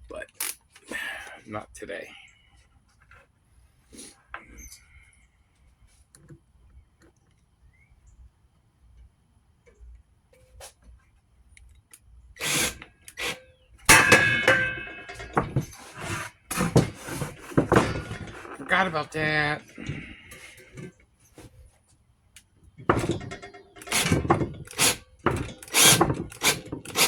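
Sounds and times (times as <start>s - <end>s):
knocks: 13.9s - 18.6s
metal ringing: 13.9s - 20.9s
metal tools clattering down: 13.9s - 20.9s, 22.9s - 24.7s.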